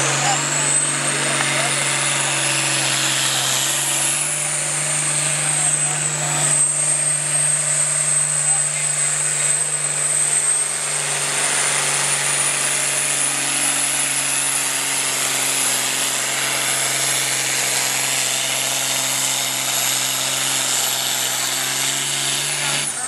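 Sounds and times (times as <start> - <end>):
high whine rising in pitch: 0.0 - 15.0
tractor engine under load: 0.0 - 23.0.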